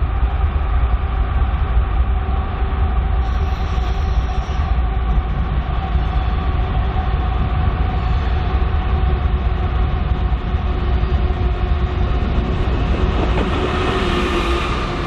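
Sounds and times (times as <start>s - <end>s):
freight train rumbling past: 0.0s - 15.0s
hiss: 3.2s - 4.8s.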